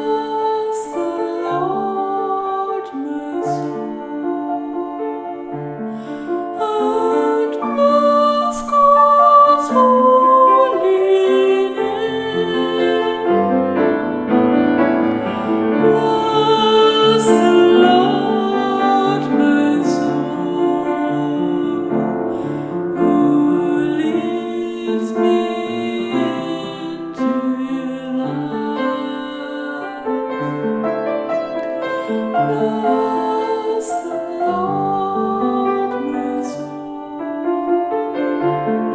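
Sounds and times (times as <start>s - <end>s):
gentle chant singing: 6.5s - 13.6s, 23.0s - 30.3s.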